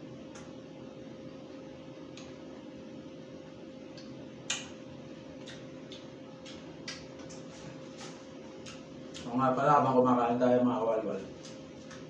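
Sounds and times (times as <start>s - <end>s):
man chewing with mouth clicks: 3.9s - 9.3s.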